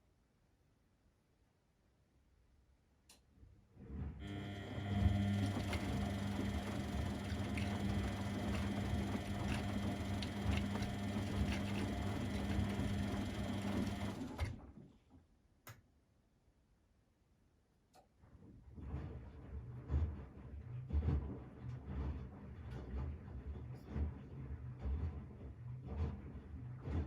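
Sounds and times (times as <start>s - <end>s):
washing machine drum turning: 4.8s - 14.2s.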